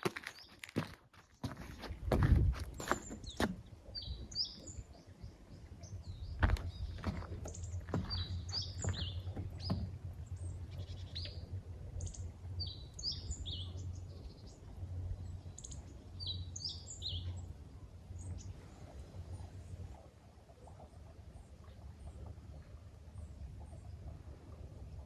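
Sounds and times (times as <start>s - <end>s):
low steady rumble: 1.8s - 25.0s
bird chirping: 2.8s - 14.5s.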